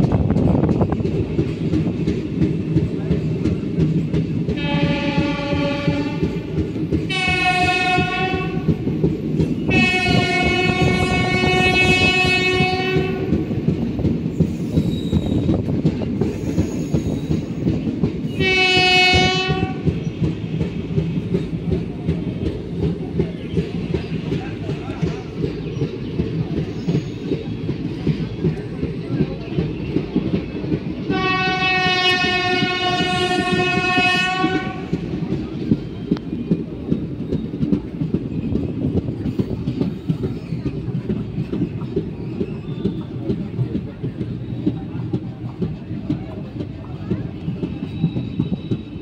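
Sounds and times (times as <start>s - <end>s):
train wheels rumbling on rails: 0.0s - 49.0s
locomotive horn blasts: 4.6s - 6.3s, 7.1s - 8.7s, 9.7s - 13.4s, 18.3s - 19.9s, 31.1s - 35.0s.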